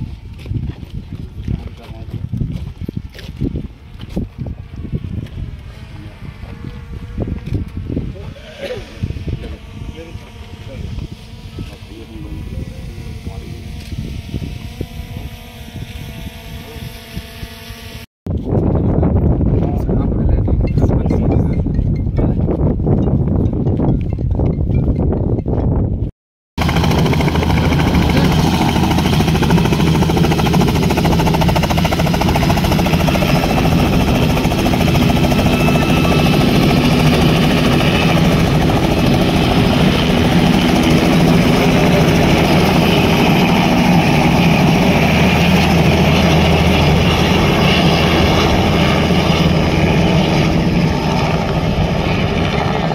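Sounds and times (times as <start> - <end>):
helicopter engine and rotor: 4.6 - 17.1, 26.6 - 52.9.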